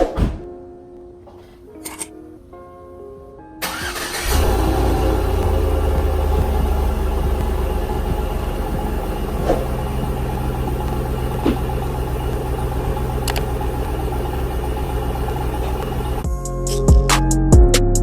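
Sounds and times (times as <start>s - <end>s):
car engine idling: 3.6s - 16.3s.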